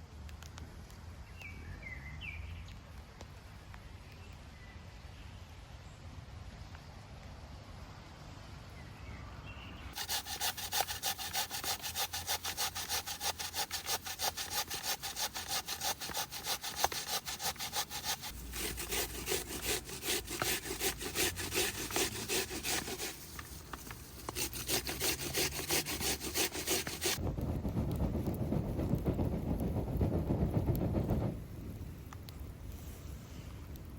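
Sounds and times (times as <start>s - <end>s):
hand saw cutting wood: 10.0s - 27.2s.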